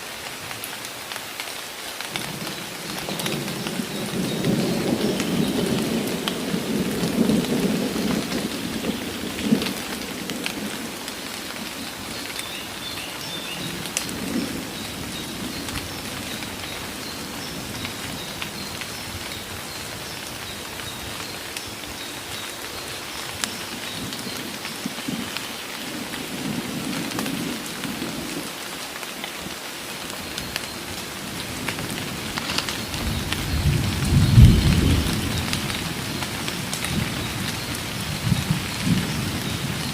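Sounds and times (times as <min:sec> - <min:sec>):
heavy rain pouring: 0:00.0 - 0:39.9
thunder rumbling: 0:02.2 - 0:12.3, 0:30.5 - 0:39.9.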